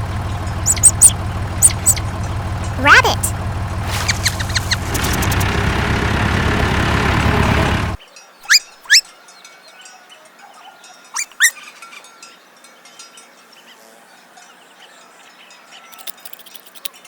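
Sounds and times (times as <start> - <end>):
tractor engine humming: 0.0 - 8.0
birds chirping: 0.0 - 9.1, 11.2 - 12.1.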